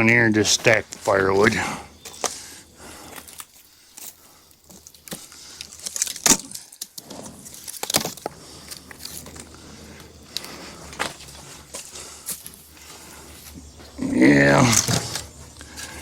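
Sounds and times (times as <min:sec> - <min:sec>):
firewood pieces knocking together: 0:04.7 - 0:09.5.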